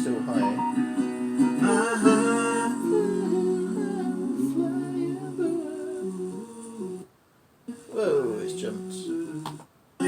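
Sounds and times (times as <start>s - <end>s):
voices singing wordless harmony: 1.3s - 7.1s, 7.7s - 9.7s.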